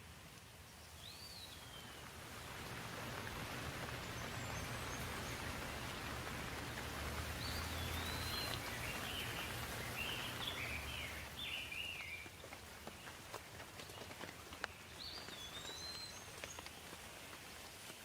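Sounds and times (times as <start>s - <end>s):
rain hissing: 0.0s - 18.0s
bird singing: 0.9s - 2.1s, 3.9s - 6.5s, 7.2s - 12.4s, 14.6s - 16.8s.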